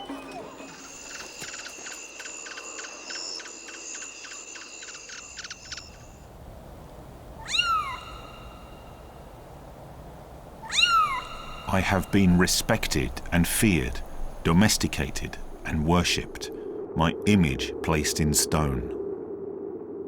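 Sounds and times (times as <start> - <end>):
cat meowing: 10.6 - 11.7.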